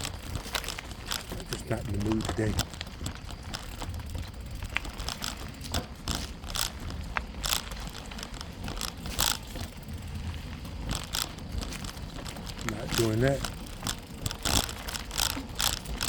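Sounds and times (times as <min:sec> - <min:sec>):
bicycle clattering and rattling: 0:00.0 - 0:16.0
bicycle tyres rumbling on dirt: 0:00.0 - 0:16.0.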